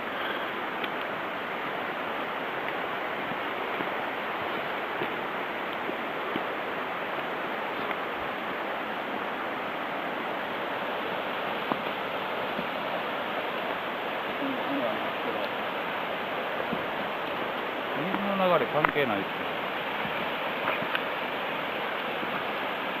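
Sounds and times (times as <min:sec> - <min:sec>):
mountain stream rushing: 0:00.0 - 0:23.0.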